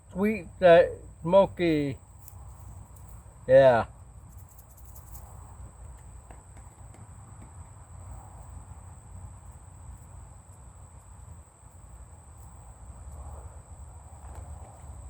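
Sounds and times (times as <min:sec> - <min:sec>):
high-pitched insect trill: 0:01.8 - 0:05.8.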